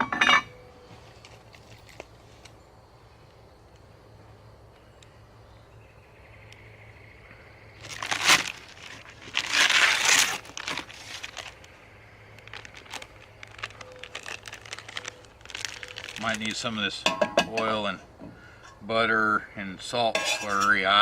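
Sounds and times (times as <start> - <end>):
paper bag crinkling: 7.8 - 11.7, 12.3 - 16.9.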